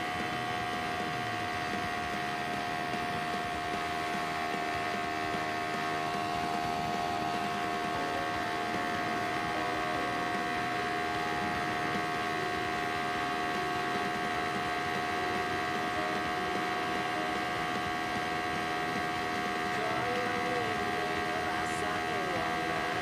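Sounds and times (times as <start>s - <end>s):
motorcycle engine droning: 0.0s - 23.0s.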